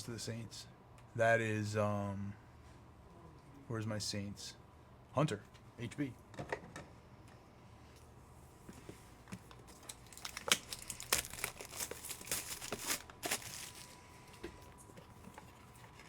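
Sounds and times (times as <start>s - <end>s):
wrapper tearing and crinkling: 9.7s - 14.0s.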